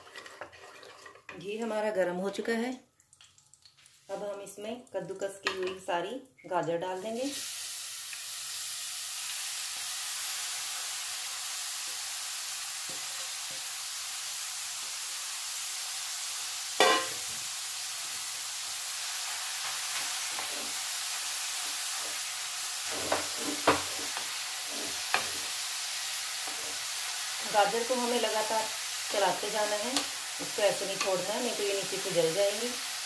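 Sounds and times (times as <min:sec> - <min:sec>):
carrots sizzling in hot fat: 0:06.0 - 0:33.0.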